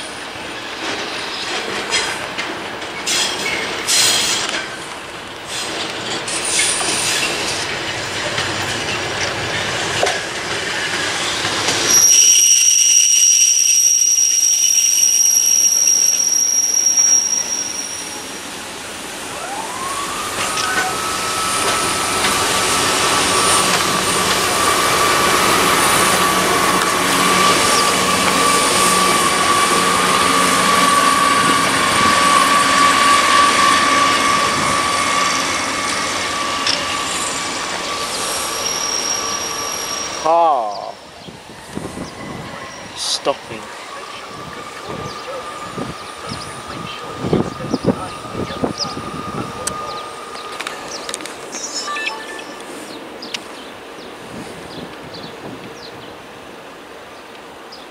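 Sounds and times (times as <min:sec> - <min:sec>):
train rail noise: 0:00.0 - 0:57.9
high-pitched wheel squeal: 0:11.9 - 0:18.4, 0:19.7 - 0:40.4, 0:44.0 - 0:51.0
whine rising in pitch: 0:19.3 - 0:38.8.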